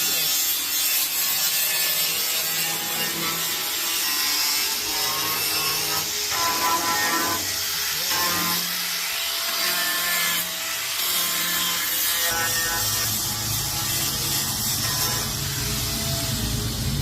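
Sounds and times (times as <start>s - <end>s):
low motor hum: 13.1s - 17.0s.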